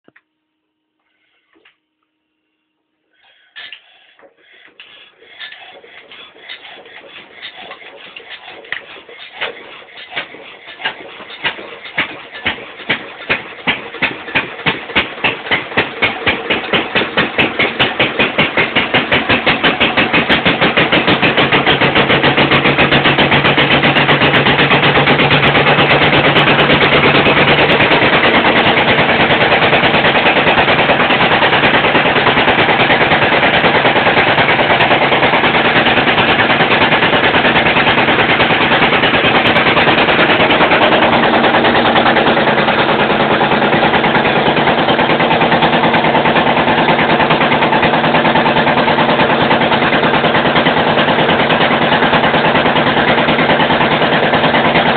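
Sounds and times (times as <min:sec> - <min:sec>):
diesel engine starting and running: 0:03.0 - 0:54.9.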